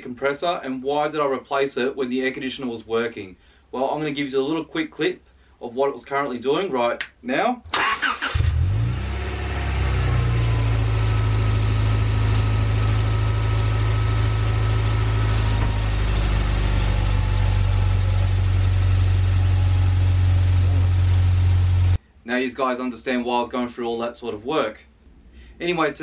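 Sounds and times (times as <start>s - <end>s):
car engine idling: 8.6s - 22.0s.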